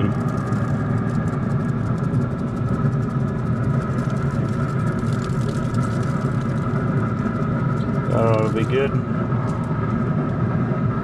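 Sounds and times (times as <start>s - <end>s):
mechanical hum and rumble: 0.0s - 11.0s.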